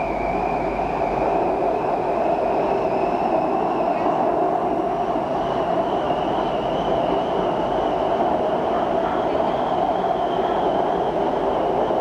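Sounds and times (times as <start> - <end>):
metro train rumble and whine: 0.0 - 12.0.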